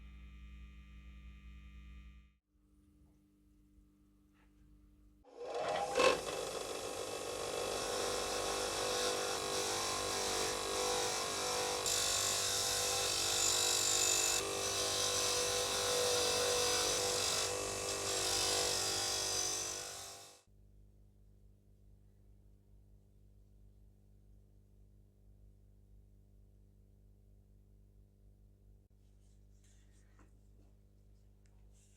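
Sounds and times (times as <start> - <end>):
power tool on metal: 5.3 - 20.4.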